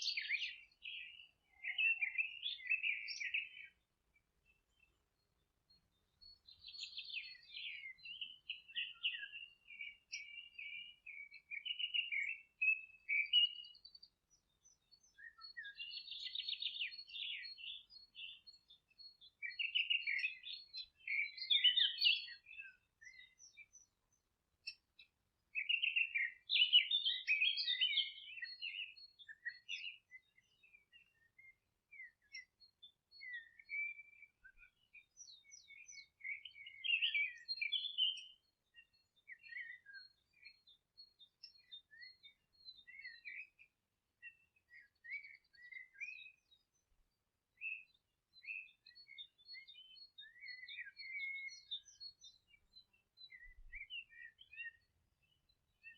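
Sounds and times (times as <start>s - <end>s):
songbirds trilling and chirping: 0.0s - 55.9s.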